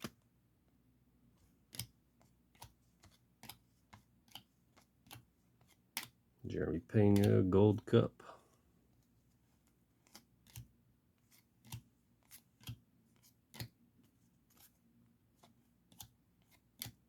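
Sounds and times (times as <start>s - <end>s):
trading cards snapping: 7.0s - 7.4s, 10.0s - 10.6s.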